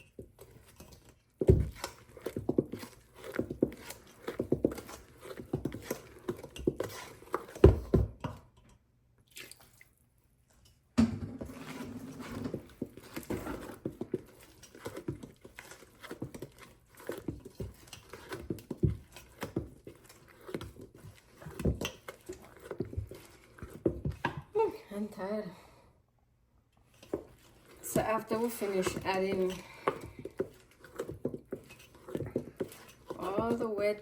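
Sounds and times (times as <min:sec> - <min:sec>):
spatula folding batter in bowl: 0:00.0 - 0:08.8, 0:10.6 - 0:24.6, 0:26.8 - 0:34.0.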